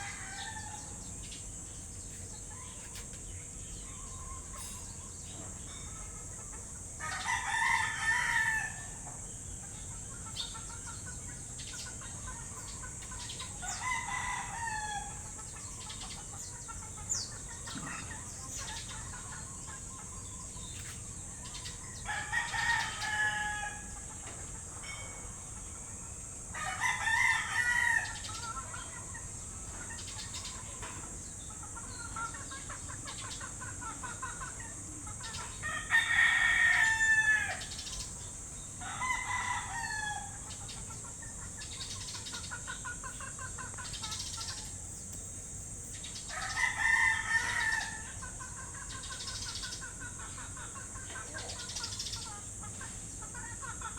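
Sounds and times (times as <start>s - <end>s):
rooster crowing: 0.0s - 1.0s, 7.0s - 9.0s, 13.6s - 15.4s, 21.9s - 24.1s, 26.5s - 28.4s, 35.6s - 37.8s, 38.8s - 40.6s, 46.3s - 48.3s
trilling bird calls: 26.8s - 53.9s
high-pitched hiss: 43.8s - 48.1s.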